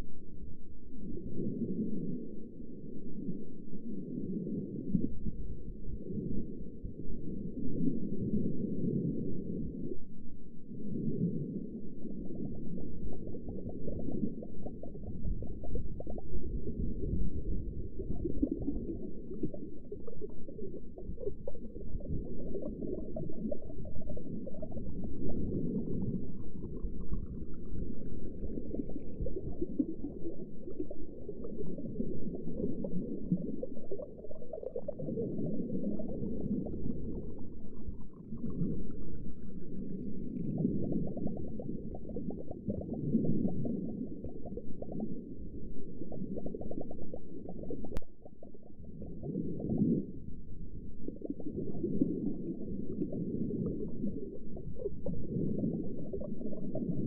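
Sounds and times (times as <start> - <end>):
steady low rumble: 0.0 - 57.0
underwater bubbling and gurgling: 0.0 - 57.0.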